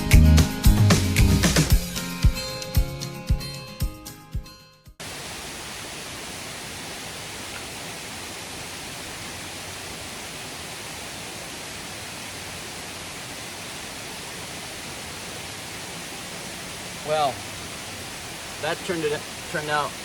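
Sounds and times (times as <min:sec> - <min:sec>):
music: 0:00.0 - 0:05.0
waterfall rushing: 0:05.0 - 0:20.0.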